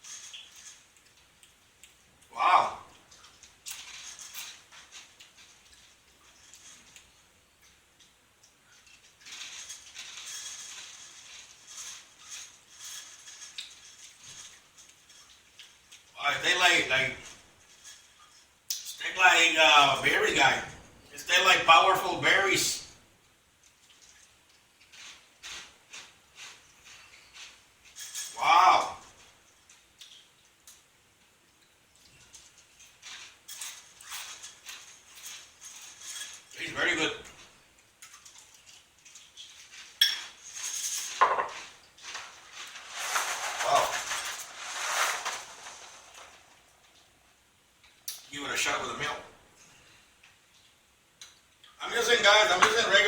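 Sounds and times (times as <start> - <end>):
crunchy cereal being chewed: 0.0 - 2.3, 2.9 - 19.0, 23.6 - 28.4, 29.0 - 36.6, 37.2 - 42.8.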